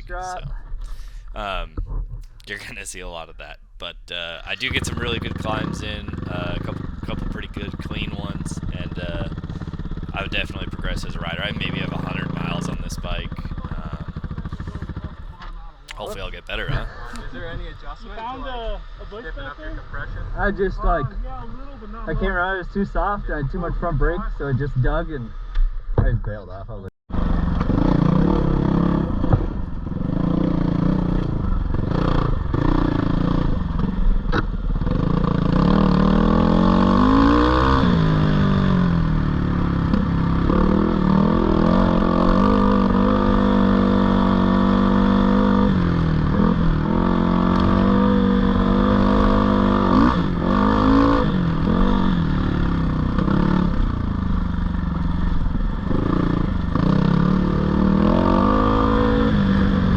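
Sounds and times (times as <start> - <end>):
dirt bike engine revving: 4.2 - 17.3, 27.2 - 34.0, 34.6 - 59.9.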